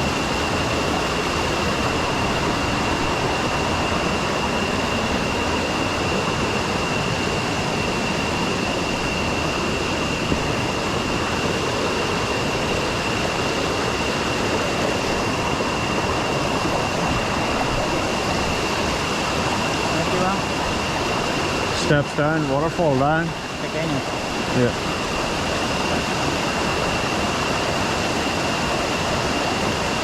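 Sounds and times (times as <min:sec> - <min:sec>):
waterfall rushing: 0:00.0 - 0:10.1
thin high whine: 0:00.0 - 0:30.0.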